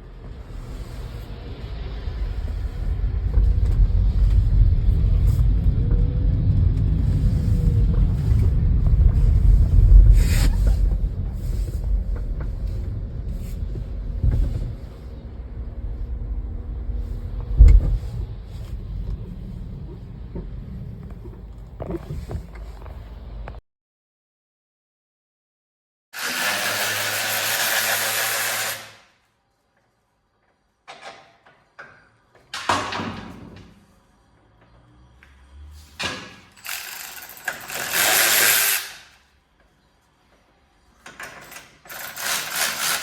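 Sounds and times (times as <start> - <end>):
vehicle rumble: 0.0 - 23.6, 33.8 - 38.1.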